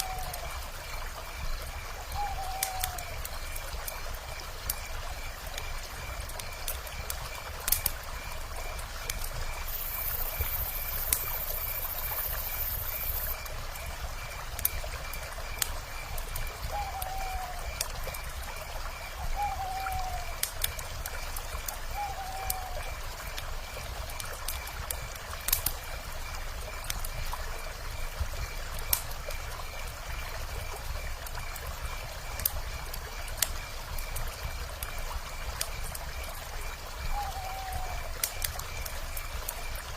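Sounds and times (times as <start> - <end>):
wood fire crackling: 0.0 - 39.9
owl calls: 16.7 - 17.6, 37.1 - 38.0.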